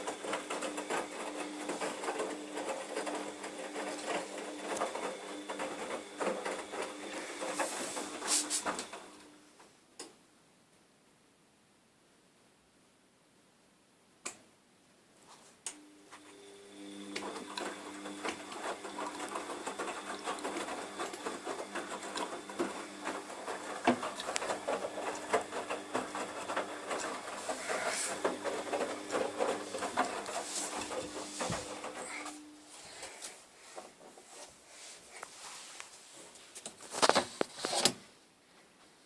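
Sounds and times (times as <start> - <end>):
laundry machine motor hum: 0.0 - 9.4, 15.8 - 34.1.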